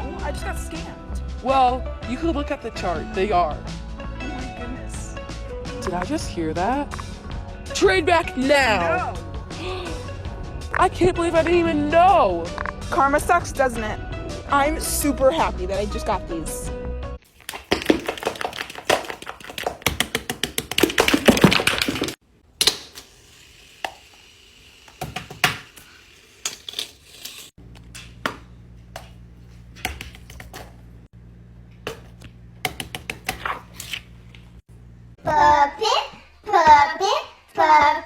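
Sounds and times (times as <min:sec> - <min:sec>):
steady low hum: 0:27.6 - 0:32.7.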